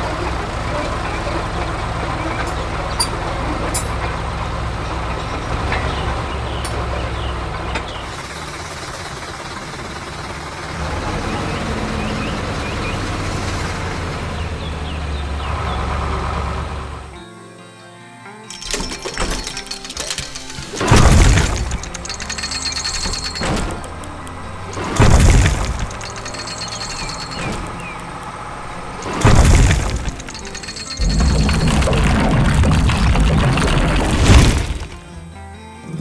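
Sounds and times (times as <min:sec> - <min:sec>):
heavy diesel machinery running: 0:00.0 - 0:17.2, 0:18.5 - 0:35.2
sharp clicks and knocks: 0:18.5 - 0:35.2.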